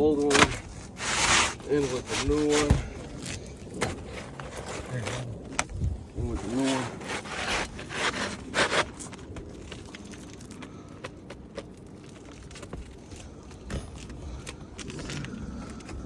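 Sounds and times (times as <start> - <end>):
shingle scraping: 0.0 - 10.9.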